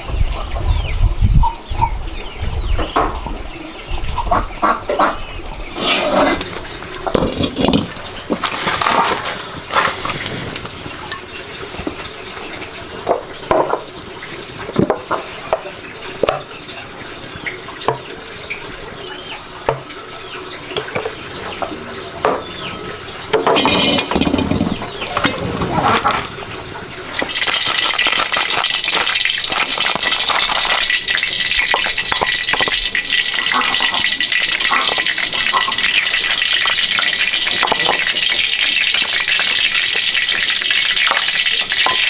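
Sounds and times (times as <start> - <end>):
water splashing and pouring: 5.7 - 42.0
dishes clinking: 23.3 - 25.6.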